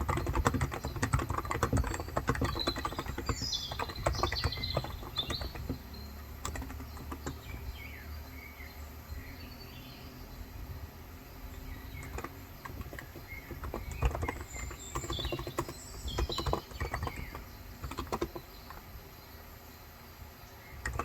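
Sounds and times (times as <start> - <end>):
typing on a keyboard: 0.0 - 7.8, 11.5 - 19.0, 20.8 - 21.0
birds chirping faintly: 0.0 - 21.0.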